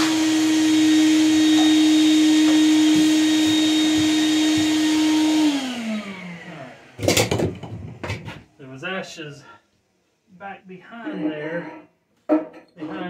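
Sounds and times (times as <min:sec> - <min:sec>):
vacuum cleaner motor: 0:00.0 - 0:08.2.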